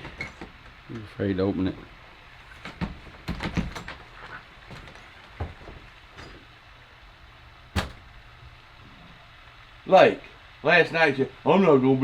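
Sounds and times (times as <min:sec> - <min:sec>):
door knocks: 0:02.7 - 0:04.0, 0:07.8 - 0:08.2
door lock clicks: 0:07.8 - 0:08.1.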